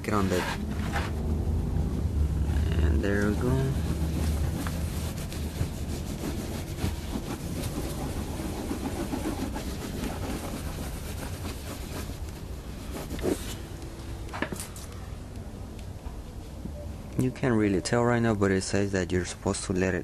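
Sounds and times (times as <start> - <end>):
cloth rubbing on painted panel: 0.0 - 1.3, 2.4 - 13.7
steady low rumble: 0.0 - 18.9.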